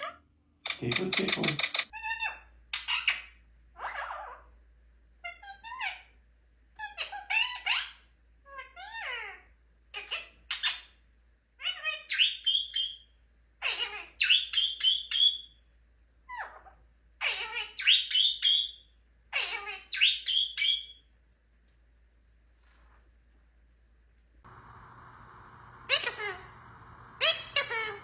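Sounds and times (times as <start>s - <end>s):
parrot shrill calls: 1.7s - 4.5s, 6.8s - 9.4s, 11.6s - 15.6s, 16.3s - 21.0s, 25.2s - 28.0s.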